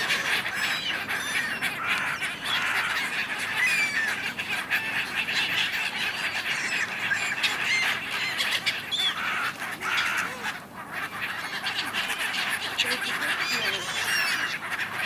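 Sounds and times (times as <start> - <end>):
gulls squawking: 0.0 - 15.0.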